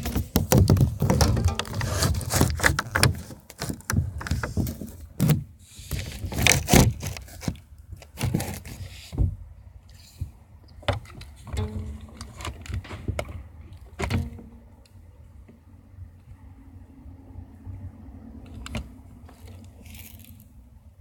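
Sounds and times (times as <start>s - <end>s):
scraping noises: 0.0s - 3.8s
knocks and bumps: 0.0s - 5.4s, 10.9s - 14.6s.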